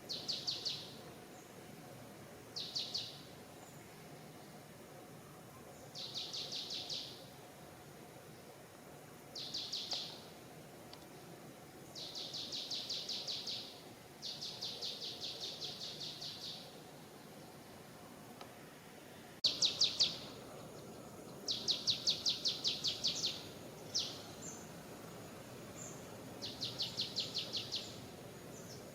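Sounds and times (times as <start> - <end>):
outdoor background hiss: 0.0 - 28.9
bird singing fast high trills: 19.5 - 20.9, 21.5 - 24.7, 25.8 - 28.8.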